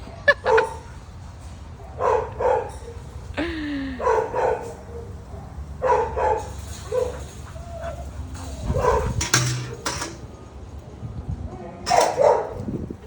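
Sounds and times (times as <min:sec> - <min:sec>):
dog barking: 0:01.8 - 0:03.0, 0:04.0 - 0:08.0, 0:08.6 - 0:09.2, 0:11.9 - 0:12.6
dog whining: 0:06.8 - 0:09.2.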